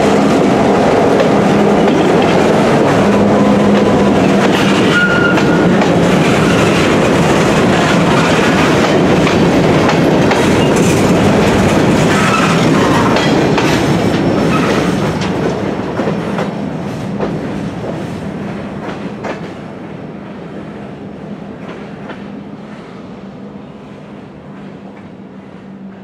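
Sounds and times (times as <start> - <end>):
train wheel clicks: 0.3 - 18.0.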